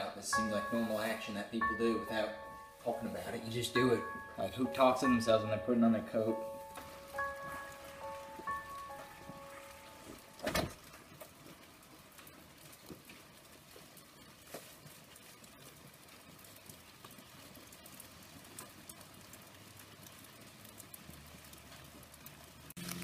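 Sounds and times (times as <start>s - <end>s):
light rain patter: 0.0s - 23.0s
door banging shut: 10.4s - 10.8s
small ticks: 10.9s - 23.0s.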